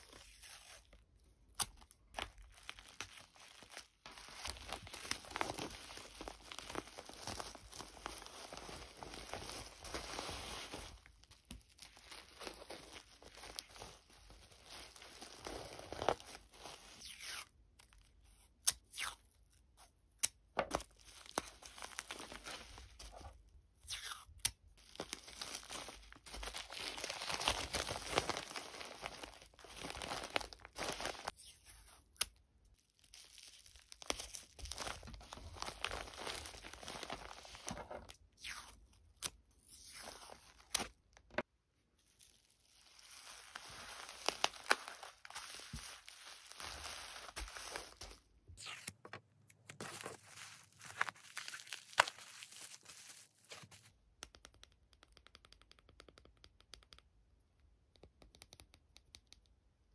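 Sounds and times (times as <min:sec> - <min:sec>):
packaging tearing and rustling: 0:01.6 - 0:17.1, 0:24.8 - 0:31.3, 0:33.0 - 0:38.1, 0:42.2 - 0:49.0, 0:49.6 - 0:53.9.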